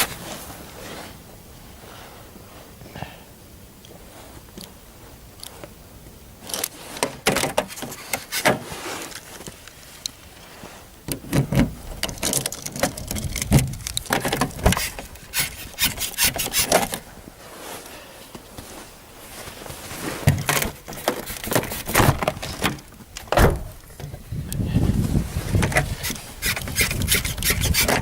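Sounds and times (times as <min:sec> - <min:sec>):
snow scraped off a car: 0:00.0 - 0:02.7, 0:07.9 - 0:10.9, 0:14.8 - 0:20.4, 0:24.7 - 0:28.0.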